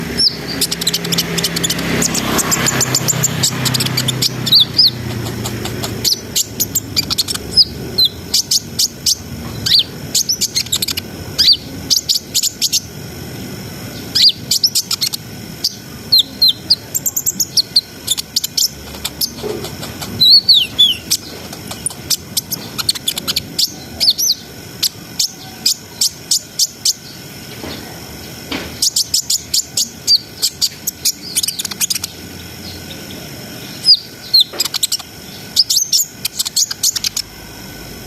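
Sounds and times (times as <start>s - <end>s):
bird singing high chirps: 0.0s - 12.9s, 13.9s - 27.2s, 28.8s - 37.4s
steady low noise: 0.0s - 28.5s.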